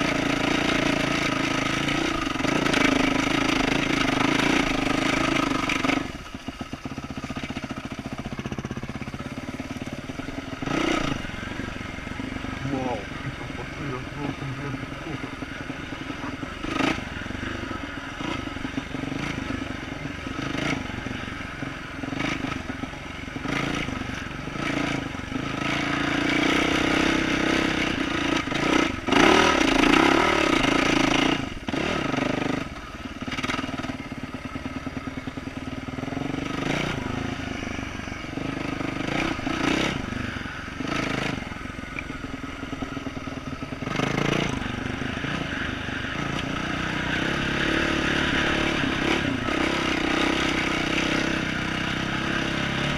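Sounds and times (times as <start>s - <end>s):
knocks and rattles from bike: 0.0s - 11.4s, 14.8s - 37.1s
dirt bike engine revving: 0.0s - 52.9s.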